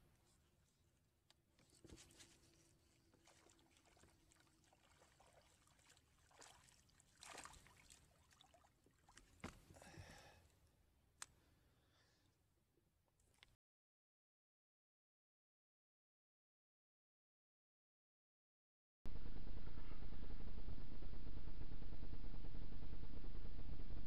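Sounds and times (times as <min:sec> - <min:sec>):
small water splashes: 0:02.9 - 0:09.6
water trickling: 0:03.2 - 0:09.4.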